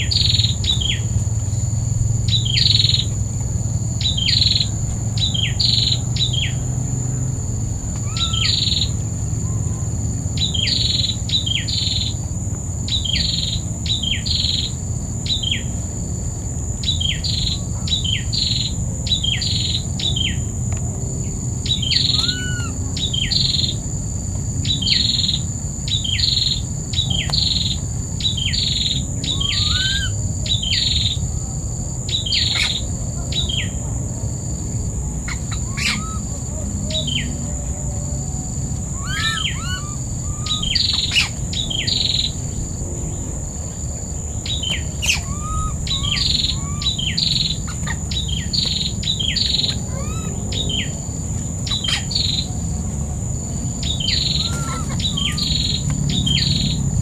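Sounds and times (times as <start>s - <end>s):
bird calling downward notes: 4.0s - 12.2s, 21.6s - 23.8s, 24.7s - 31.4s, 34.9s - 43.7s, 44.4s - 52.7s, 53.8s - 57.0s.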